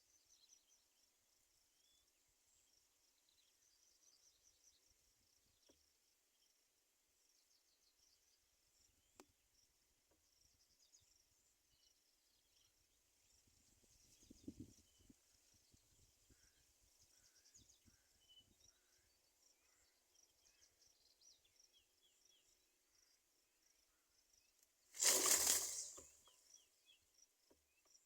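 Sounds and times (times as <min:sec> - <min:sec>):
small birds chirping: 0:00.0 - 0:06.6, 0:07.2 - 0:28.0
soft crackle: 0:24.9 - 0:26.4
insects calling: 0:25.0 - 0:26.6.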